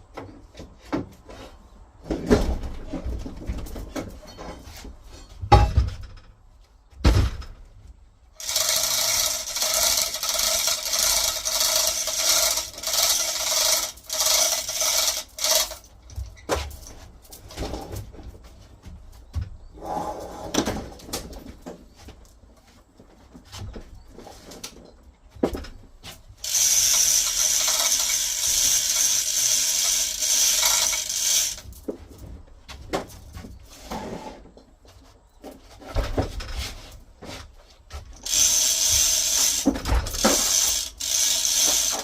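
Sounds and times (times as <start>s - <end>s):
chain hoist metallic rattling: 8.4s - 17.5s, 26.4s - 31.9s, 38.2s - 42.0s.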